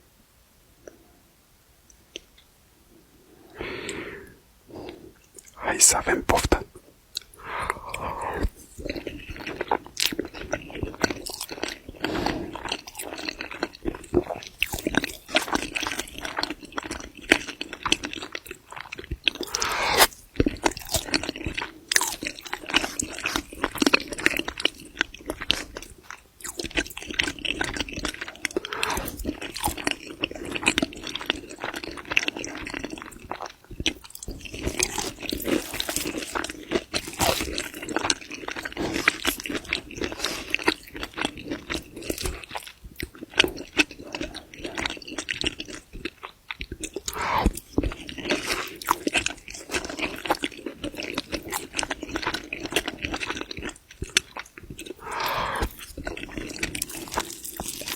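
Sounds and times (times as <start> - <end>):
person chewing with crisp crunches: 5.2 - 57.9
wet mouth sounds: 5.4 - 10.2, 19.1 - 21.2, 33.2 - 57.9.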